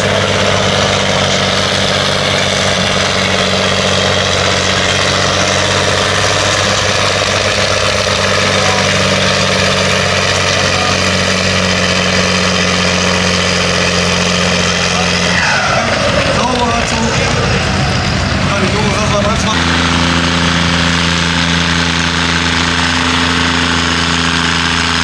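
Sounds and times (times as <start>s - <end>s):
loud engine running steadily: 0.0s - 25.0s.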